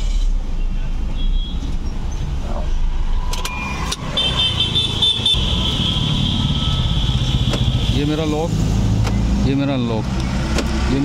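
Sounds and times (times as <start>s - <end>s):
high electronic beeping: 3.4s - 8.2s.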